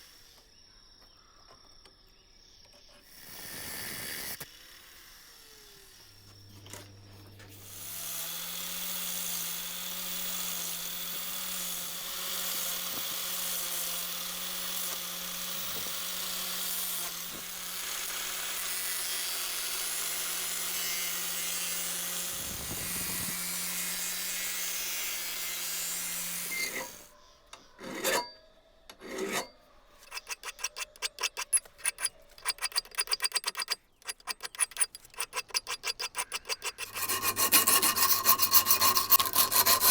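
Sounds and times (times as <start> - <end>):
small motorised tool humming: 3.0 - 39.9
rasp filing wood by hand: 7.5 - 27.1, 27.8 - 28.4, 29.0 - 39.9.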